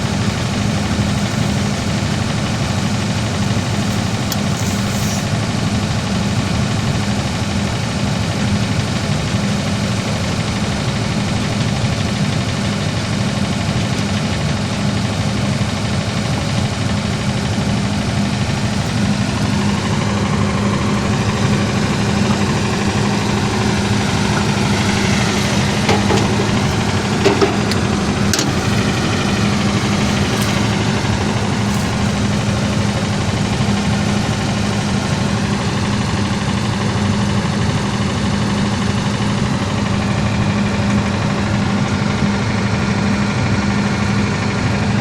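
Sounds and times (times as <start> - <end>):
engine idling: 0.0 - 45.0
sharp clicks and knocks: 24.2 - 33.2.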